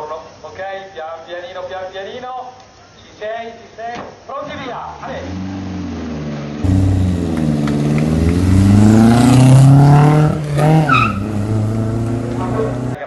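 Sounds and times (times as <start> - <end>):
car engine accelerating hard: 5.0 - 13.0.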